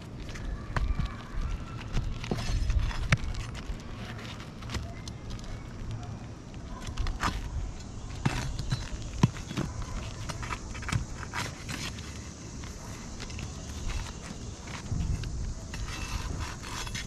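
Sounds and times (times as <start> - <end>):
taps and scrapes on roof shingles: 0.1 - 5.5, 6.8 - 17.0.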